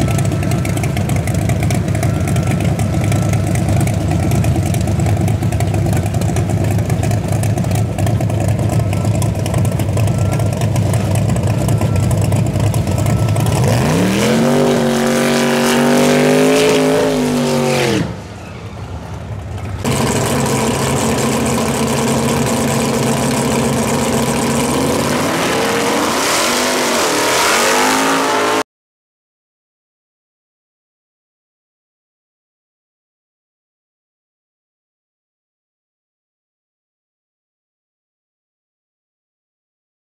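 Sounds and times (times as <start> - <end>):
race car engine revving: 0.1 - 18.3, 19.8 - 28.6.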